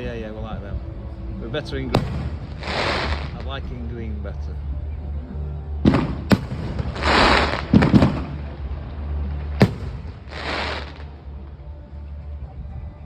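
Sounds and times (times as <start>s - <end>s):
fireworks bangs: 2.0s - 3.5s, 5.9s - 11.2s
fireworks hissing bursts: 2.0s - 3.5s, 5.9s - 8.5s, 9.6s - 11.2s.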